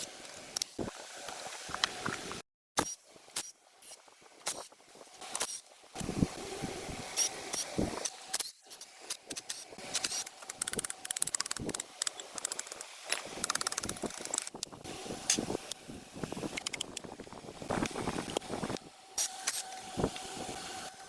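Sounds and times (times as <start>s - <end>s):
ratchet clicking rapidly: 10.0s - 14.7s.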